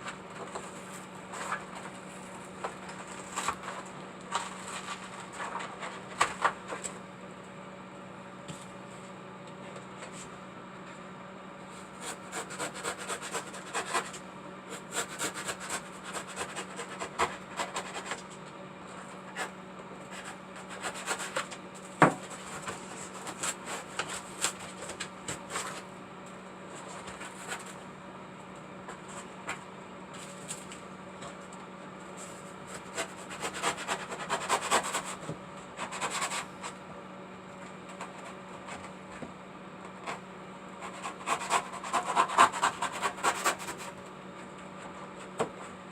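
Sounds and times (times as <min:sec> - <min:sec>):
hand scraping a hard surface: 0:00.0 - 0:06.9
steady low hum: 0:00.0 - 0:45.9.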